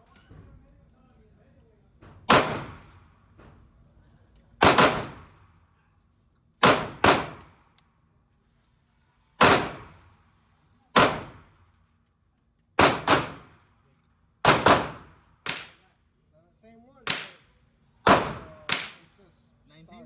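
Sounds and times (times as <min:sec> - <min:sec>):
echoing gunshots: 0:02.3 - 0:03.0, 0:04.6 - 0:05.4, 0:06.6 - 0:07.6, 0:09.4 - 0:09.9, 0:11.0 - 0:11.5, 0:12.8 - 0:13.6, 0:14.4 - 0:15.8, 0:17.1 - 0:17.4, 0:18.0 - 0:19.0.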